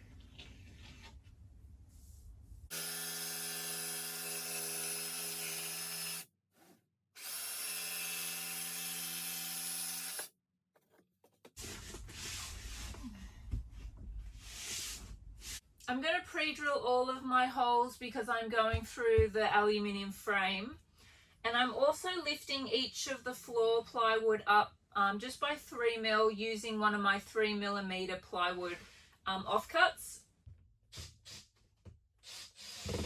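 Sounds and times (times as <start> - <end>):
power tool motor running: 2.7 - 6.2, 7.2 - 10.3.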